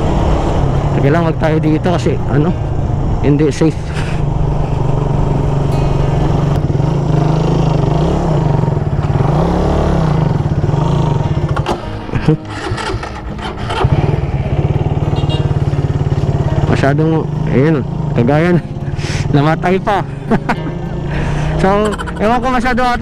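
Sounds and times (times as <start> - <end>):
motorcycle engine running: 0.0 - 23.0
engine clunks: 10.1 - 19.0.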